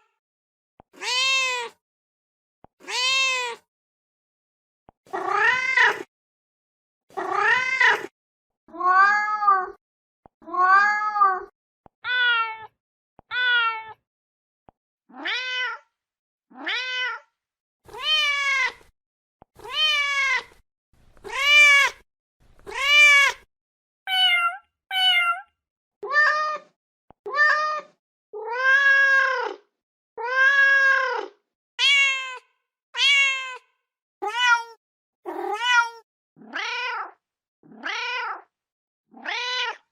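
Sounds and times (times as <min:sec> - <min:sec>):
cat meowing: 0:01.0 - 0:01.8, 0:02.8 - 0:03.6, 0:05.1 - 0:06.1, 0:07.2 - 0:08.1, 0:10.4 - 0:12.7, 0:13.3 - 0:14.0, 0:15.1 - 0:15.8, 0:16.5 - 0:17.3, 0:17.9 - 0:18.9, 0:19.6 - 0:20.6, 0:21.2 - 0:22.0, 0:22.6 - 0:23.5, 0:24.1 - 0:26.7, 0:27.3 - 0:29.6, 0:30.2 - 0:38.5, 0:39.2 - 0:39.9.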